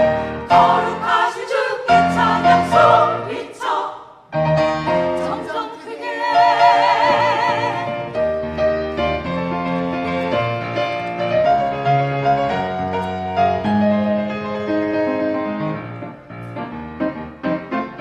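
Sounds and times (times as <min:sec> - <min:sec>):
piano chords and melody: 0:00.0 - 0:03.4, 0:04.3 - 0:05.6, 0:06.2 - 0:18.0
ensemble singing with vibrato: 0:00.0 - 0:04.3, 0:05.0 - 0:08.3.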